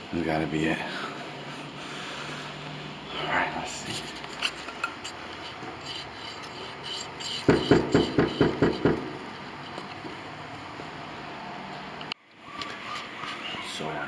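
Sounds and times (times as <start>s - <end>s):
knocking on a door: 7.5s - 9.2s.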